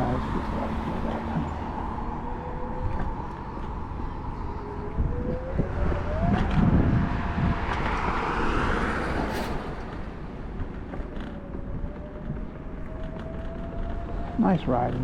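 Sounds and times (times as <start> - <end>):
road rumble: 0.0 - 15.0
wind buffeting microphone: 0.0 - 15.0
electric scooter motor whining: 9.8 - 15.0.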